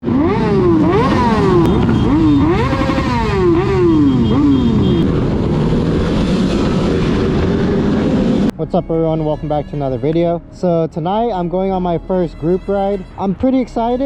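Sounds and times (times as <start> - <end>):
motorcycle engine revving: 0.0 - 8.5.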